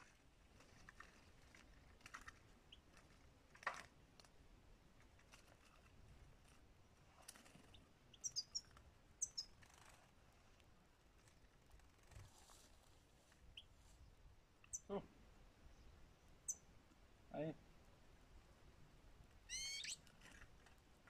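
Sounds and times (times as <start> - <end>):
small bird chirping: 7.4 - 10.1, 13.3 - 15.0, 15.7 - 16.7, 19.5 - 20.4.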